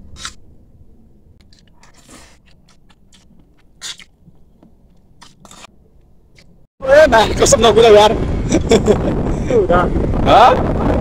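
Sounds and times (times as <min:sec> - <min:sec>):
person chewing rice: 0:01.4 - 0:05.7.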